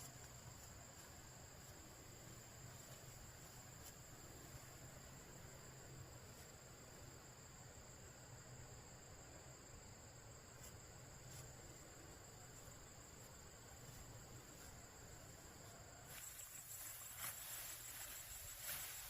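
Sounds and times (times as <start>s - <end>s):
insects chirring: 0.0s - 19.0s
hiss with crackling and rustling: 16.1s - 19.0s.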